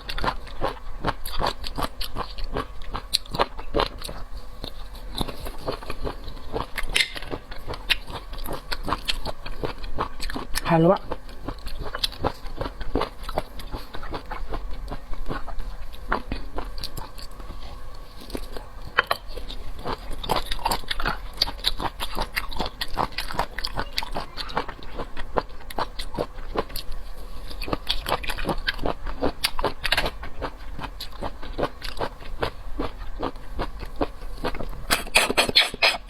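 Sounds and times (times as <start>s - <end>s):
person chewing with wet mouth clicks: 0.0s - 17.6s.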